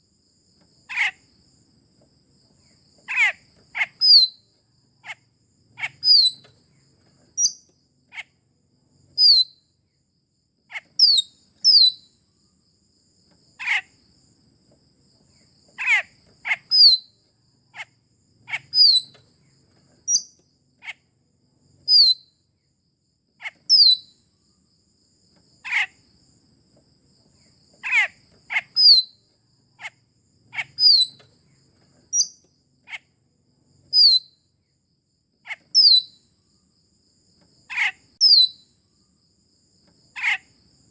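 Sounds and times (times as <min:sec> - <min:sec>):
myna calling: 0:00.9 - 0:01.2, 0:03.1 - 0:04.1, 0:15.8 - 0:16.7, 0:18.5 - 0:19.0, 0:27.8 - 0:29.0.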